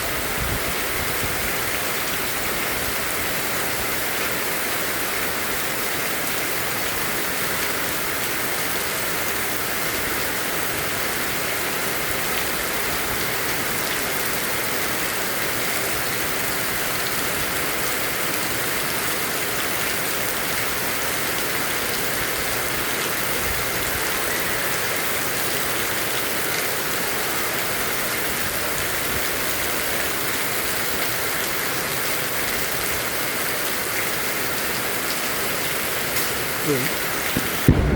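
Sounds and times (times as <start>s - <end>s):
heavy rain pouring: 0.0s - 37.9s
rain drop ticks: 36.1s - 37.9s.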